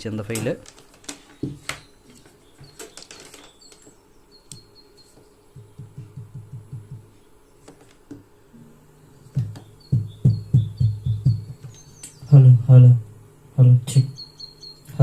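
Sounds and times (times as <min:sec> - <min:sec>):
small birds chirping faintly: 0:00.0 - 0:15.0
soft low thumps: 0:05.5 - 0:07.2, 0:08.1 - 0:13.2
loud low thumps: 0:09.4 - 0:11.7.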